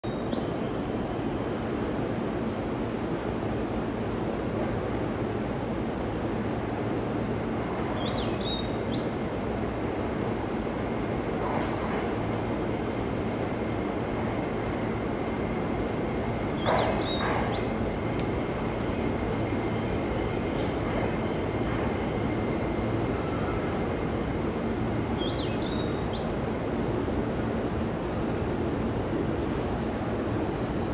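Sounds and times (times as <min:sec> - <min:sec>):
faint steady whine: 0:00.0 - 0:30.9
electric train braking to a stop: 0:19.6 - 0:23.8.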